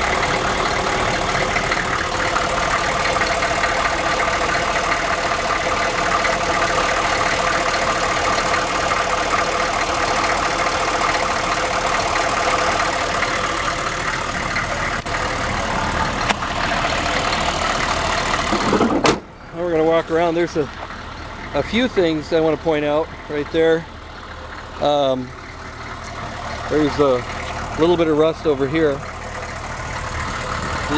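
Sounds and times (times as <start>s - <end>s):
diesel engine idling: 0.0s - 30.9s.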